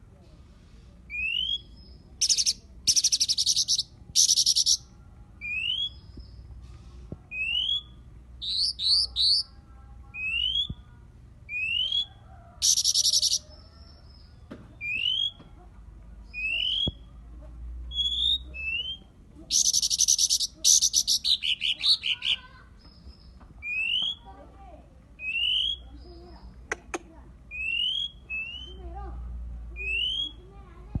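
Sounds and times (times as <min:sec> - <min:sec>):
songbird whistled notes: 0:01.1 - 0:04.8, 0:05.4 - 0:06.4, 0:07.3 - 0:09.5, 0:11.5 - 0:13.6, 0:14.2 - 0:15.4, 0:16.3 - 0:17.1, 0:17.9 - 0:22.2, 0:23.6 - 0:24.3, 0:25.2 - 0:26.2, 0:27.5 - 0:28.8, 0:29.8 - 0:30.4.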